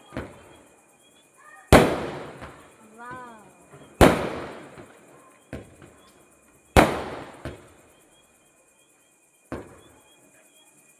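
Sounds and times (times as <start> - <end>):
loud explosive bangs: 1.7 - 2.8, 3.8 - 5.0, 6.8 - 7.8
sharp pops: 6.8 - 7.7.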